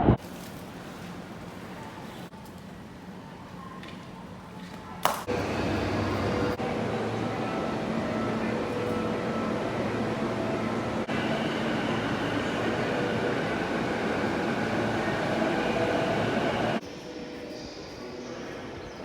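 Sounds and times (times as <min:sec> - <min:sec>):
train rumble and rush: 0:05.1 - 0:19.0
faint steady tones: 0:05.3 - 0:18.8.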